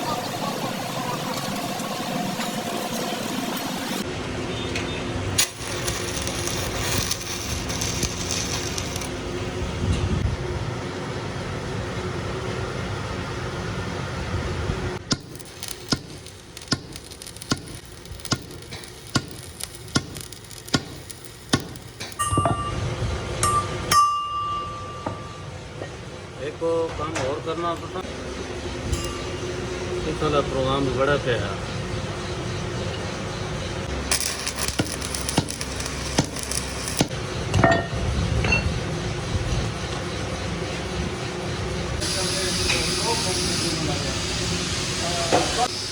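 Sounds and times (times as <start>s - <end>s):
workshop machine running: 0.0s - 23.9s, 27.8s - 45.9s
ringing metallic clinks: 22.0s - 25.5s, 28.9s - 29.4s.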